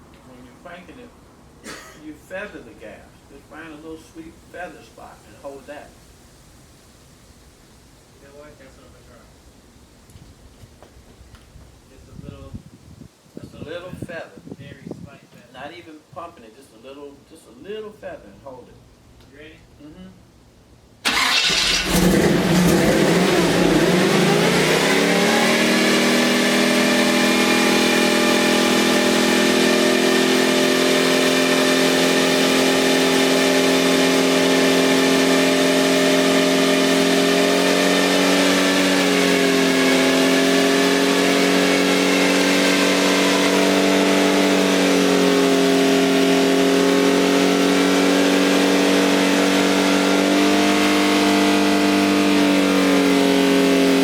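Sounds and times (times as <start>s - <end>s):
truck engine revving: 21.1s - 54.0s.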